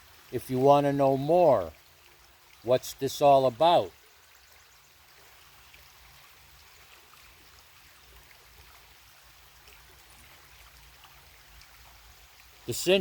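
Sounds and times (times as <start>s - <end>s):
small creek babbling: 0.0s - 13.0s.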